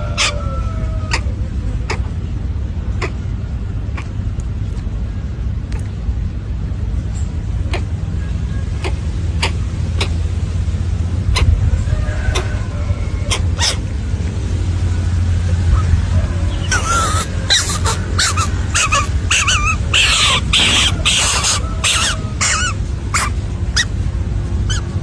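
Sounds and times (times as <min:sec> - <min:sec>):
bird squawking: 0:00.0 - 0:02.1, 0:02.9 - 0:03.3, 0:07.6 - 0:10.2, 0:11.3 - 0:11.6, 0:12.2 - 0:13.9, 0:15.7 - 0:23.9, 0:24.7 - 0:25.0
steady low hum: 0:00.0 - 0:25.0.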